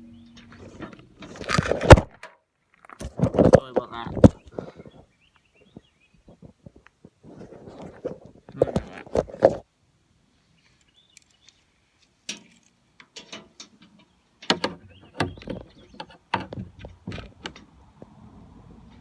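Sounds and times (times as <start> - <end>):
parts clicking and knocking: 12.3 - 18.2.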